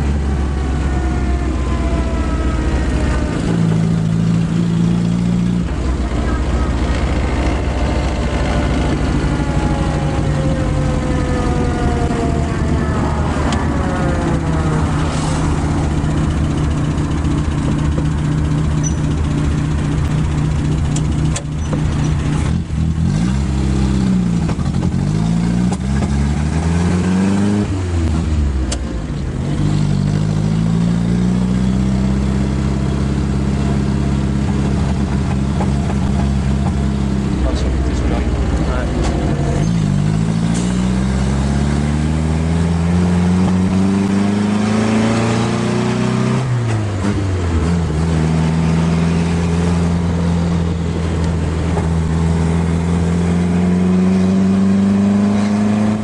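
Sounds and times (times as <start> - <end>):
falling whine: 0.0 - 21.2
car engine running: 0.0 - 56.0.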